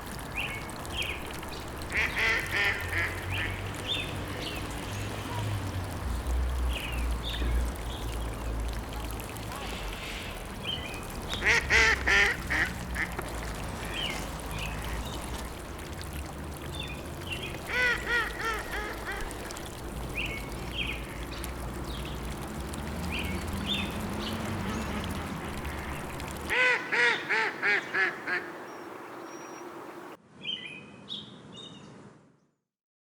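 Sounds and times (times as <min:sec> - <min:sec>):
ducks quacking: 0:01.9 - 0:03.8, 0:11.3 - 0:15.4, 0:17.6 - 0:19.7, 0:24.6 - 0:28.6.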